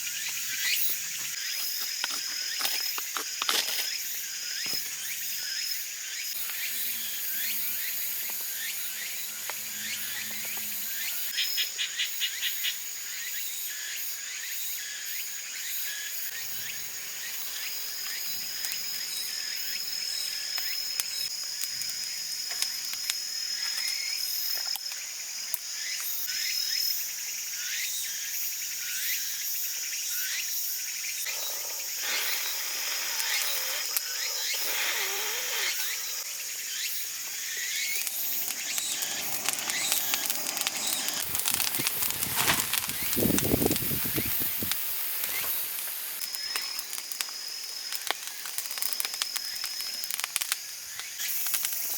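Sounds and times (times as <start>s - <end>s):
insects chirring: 0.0s - 51.9s
rustling noise: 37.9s - 46.2s.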